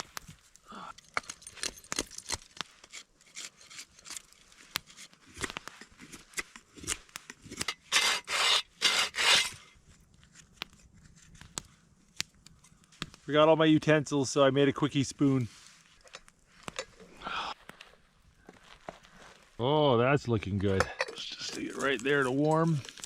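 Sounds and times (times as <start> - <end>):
knife shaving wood strokes: 0.0 - 13.2, 21.3 - 23.0
knife scraping wood: 1.1 - 11.7.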